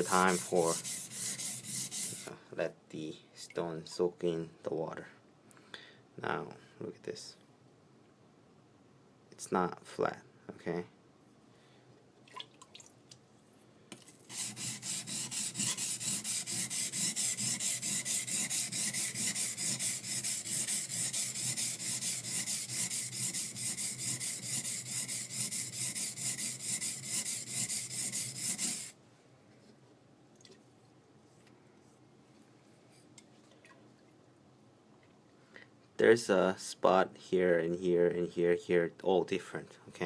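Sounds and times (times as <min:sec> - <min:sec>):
knife blade scraping on whetstone: 0:00.0 - 0:02.3, 0:14.3 - 0:28.9.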